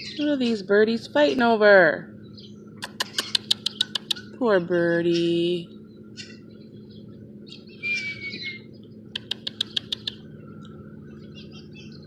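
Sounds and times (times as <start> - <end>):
sharp bird chip notes: 2.3 - 4.4, 6.1 - 10.2
harsh bird call: 7.5 - 10.2.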